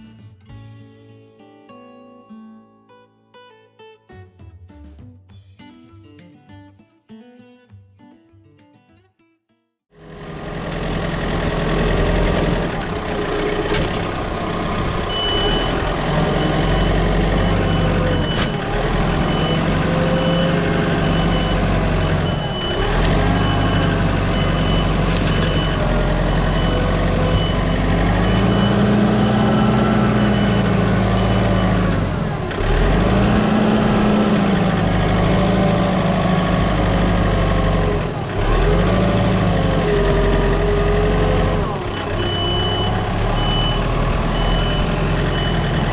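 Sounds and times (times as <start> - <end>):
heavy machine engine working: 10.0 - 45.9
warning alarm beeping: 15.0 - 32.3, 42.0 - 45.9.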